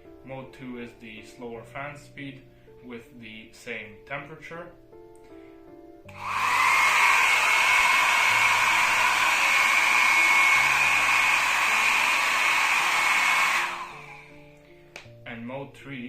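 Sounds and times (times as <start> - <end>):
hair dryer running: 6.1 - 14.6.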